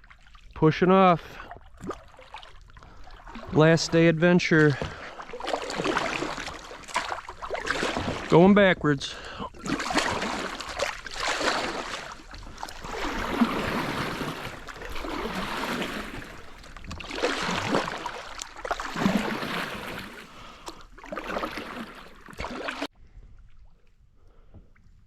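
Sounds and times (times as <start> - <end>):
kayak paddle splashing water: 0.0 - 22.9.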